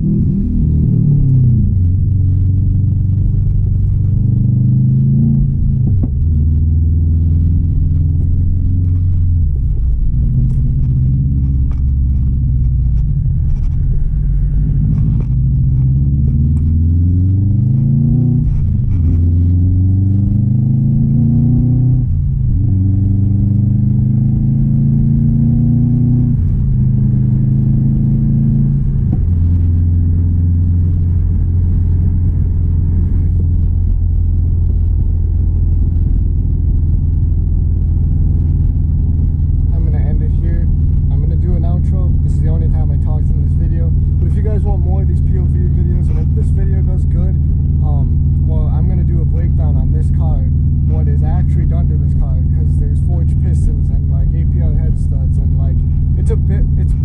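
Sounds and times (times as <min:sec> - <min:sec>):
car engine accelerating through gears: 0:00.0 - 0:57.0.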